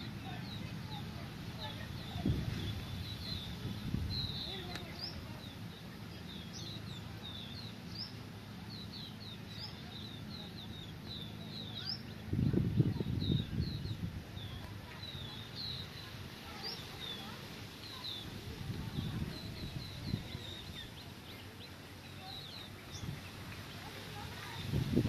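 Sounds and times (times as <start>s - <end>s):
low rumbling noise: 0.0s - 25.0s
small birds chirping: 0.0s - 25.0s.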